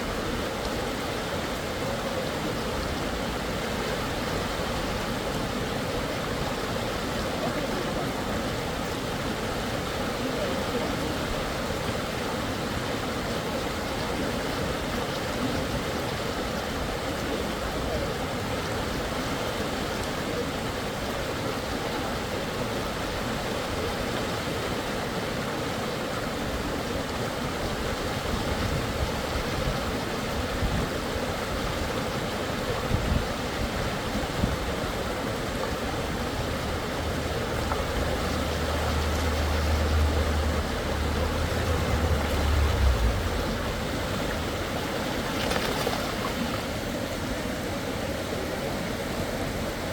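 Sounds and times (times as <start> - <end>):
river water rushing: 0.0 - 49.9
low rumble: 37.8 - 44.6.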